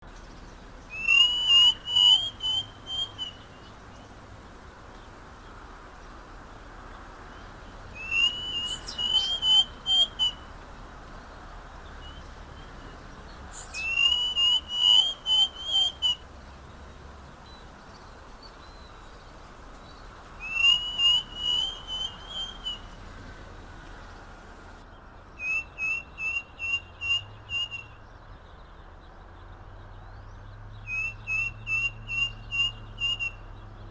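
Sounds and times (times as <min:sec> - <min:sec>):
bird whistling quick notes: 0:00.9 - 0:03.4, 0:08.0 - 0:10.4, 0:13.5 - 0:16.2, 0:20.4 - 0:22.9, 0:30.9 - 0:33.5.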